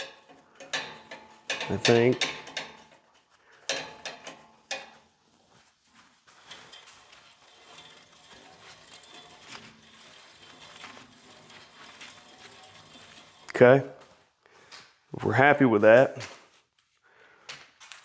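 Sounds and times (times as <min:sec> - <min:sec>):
sharp clicks and knocks: 0:00.0 - 0:05.1, 0:06.4 - 0:14.1.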